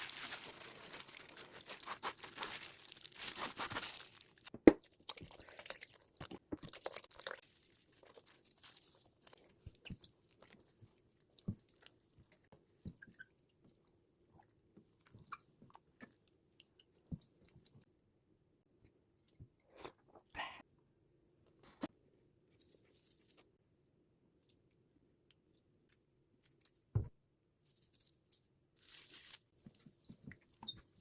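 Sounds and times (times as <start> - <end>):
crunching and chewing food: 0.0 - 12.5.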